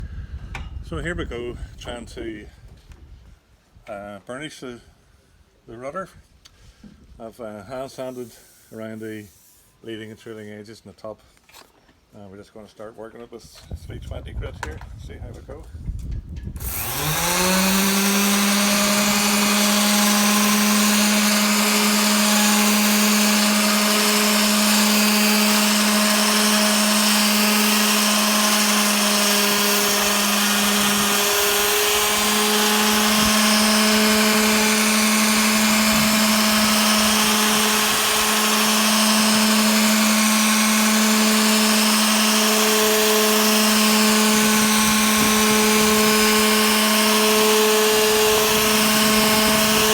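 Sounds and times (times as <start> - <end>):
sanding hiss: 8.0 - 9.8
power sander motor hum: 16.6 - 49.9.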